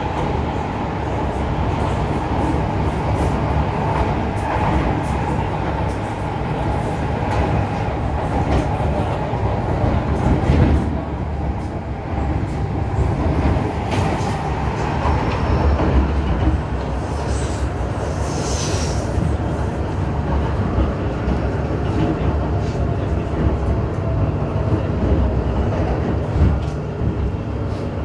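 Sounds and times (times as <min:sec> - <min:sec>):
train rumbling along track: 0:00.0 - 0:28.0.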